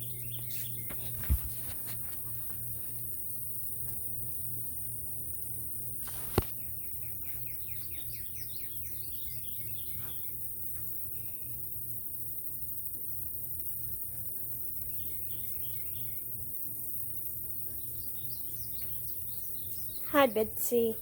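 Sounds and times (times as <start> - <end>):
bird chirping: 0.0 - 1.6, 6.5 - 11.6, 14.8 - 16.6, 17.5 - 21.0
steady low hum: 0.0 - 21.0.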